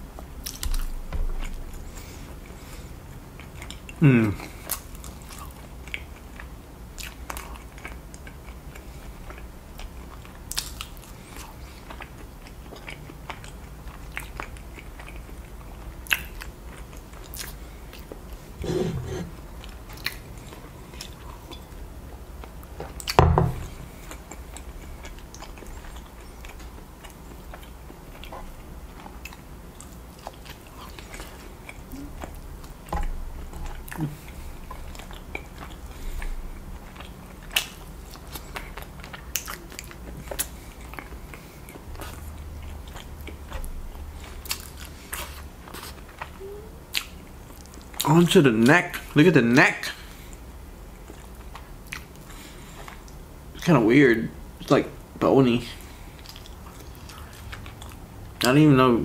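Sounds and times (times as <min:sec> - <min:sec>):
close-miked chewing and biting: 0:03.1 - 0:18.6, 0:22.4 - 0:48.1, 0:51.0 - 0:53.2, 0:55.8 - 0:58.5
loud thump: 0:23.2 - 0:23.8.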